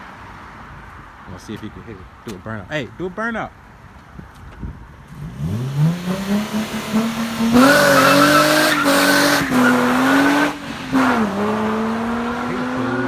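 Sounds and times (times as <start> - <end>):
car engine revving: 5.1 - 13.0
tyres squealing: 7.6 - 9.9.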